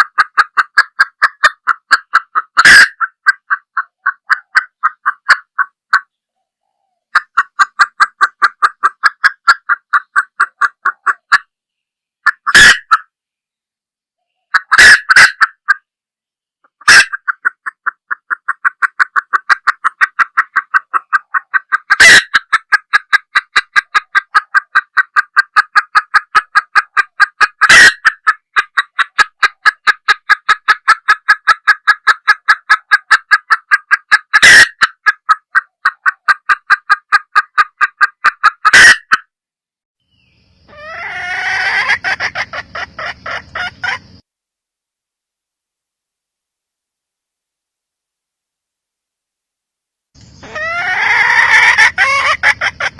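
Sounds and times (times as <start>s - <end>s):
sharp hen call: 0.0s - 6.1s, 12.3s - 13.1s, 14.5s - 15.8s, 16.8s - 39.2s, 40.6s - 44.2s, 50.2s - 52.9s
hen clucking: 0.0s - 11.5s, 12.2s - 13.2s, 14.2s - 15.9s, 16.6s - 39.3s, 40.2s - 44.2s, 50.2s - 52.9s.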